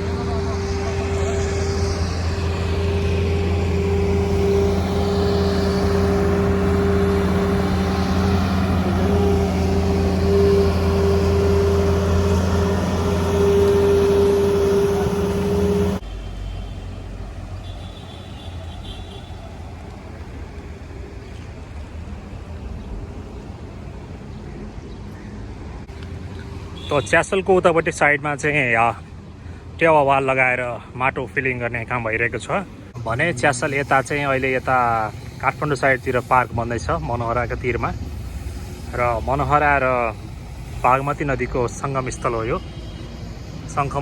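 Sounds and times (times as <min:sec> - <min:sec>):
engine humming: 0:00.0 - 0:29.7
outdoor background noise: 0:00.0 - 0:44.0.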